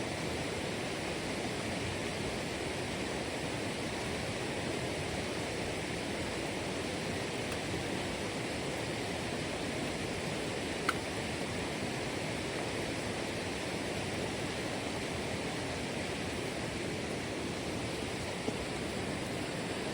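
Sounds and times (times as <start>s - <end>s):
faint click: 10.8s - 11.1s.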